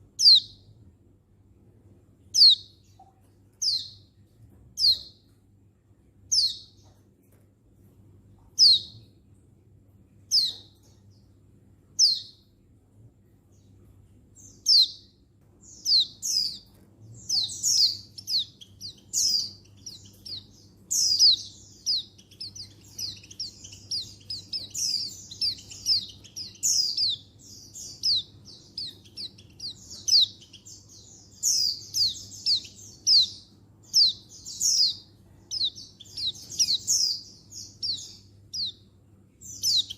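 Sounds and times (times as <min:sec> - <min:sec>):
faint low hum: 0:00.0 - 0:39.9
bird chirps and chatter: 0:15.7 - 0:39.9.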